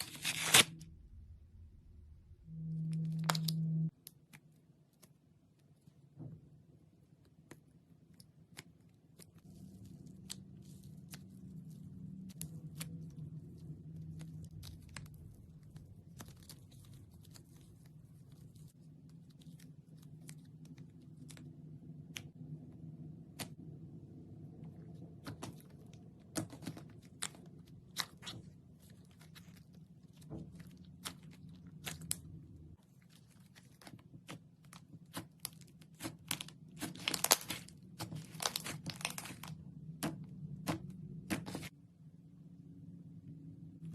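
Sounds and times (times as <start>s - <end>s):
low steady hum: 0.0s - 43.9s
slime squishing and crackling: 7.3s - 23.6s, 24.6s - 41.7s.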